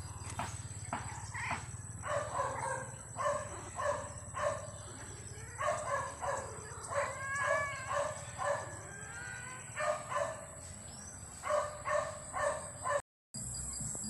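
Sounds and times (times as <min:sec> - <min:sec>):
small dog yapping: 0:01.0 - 0:08.8, 0:09.7 - 0:10.6.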